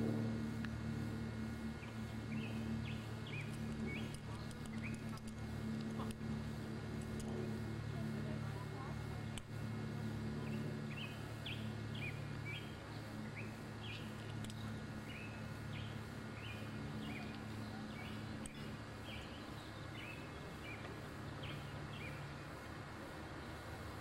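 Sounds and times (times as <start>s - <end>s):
steady low hum: 0.0s - 24.0s
small bird chirping: 1.8s - 5.4s, 10.4s - 22.4s.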